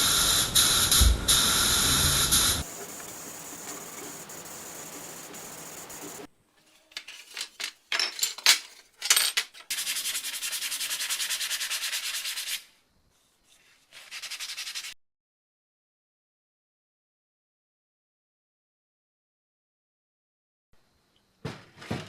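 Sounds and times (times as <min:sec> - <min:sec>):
rapid rubbing strokes on metal: 0:01.7 - 0:06.3, 0:09.7 - 0:12.7, 0:14.0 - 0:14.9.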